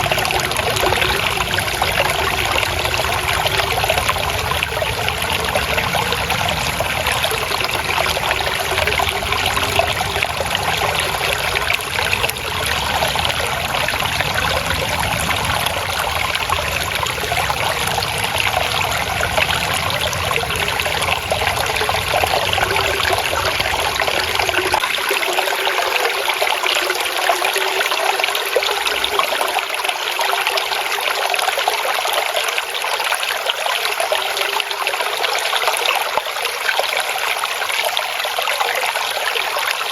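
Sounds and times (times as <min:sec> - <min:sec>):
water babbling in a stream: 0:00.0 - 0:39.9.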